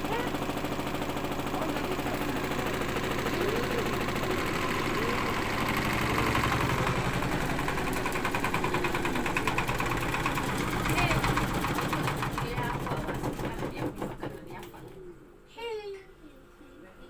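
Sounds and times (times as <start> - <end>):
washing machine running: 0.0 - 15.2
rattling knock of vibrating machine: 4.1 - 15.0.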